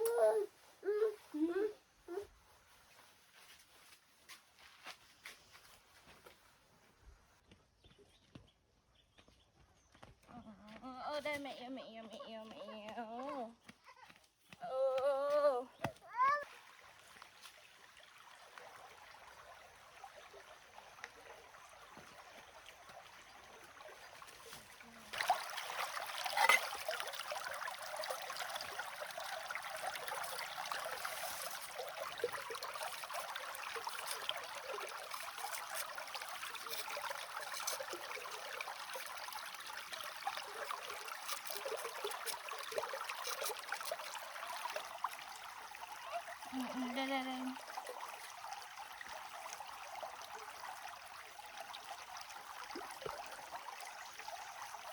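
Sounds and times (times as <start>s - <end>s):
water running and trickling: 15.4s - 54.9s.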